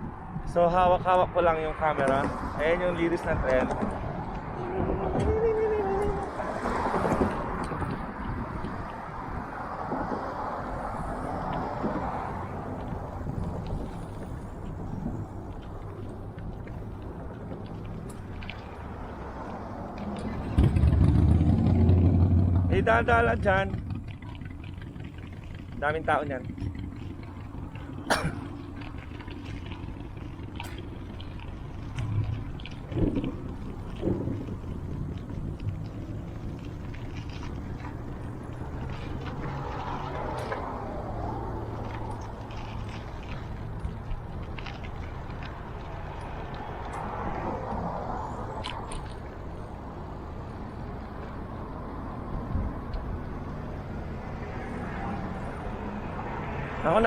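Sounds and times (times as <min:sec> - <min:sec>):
wind on microphone: 0:00.0 - 0:18.3, 0:31.8 - 0:39.1
road rumble: 0:00.0 - 0:57.0.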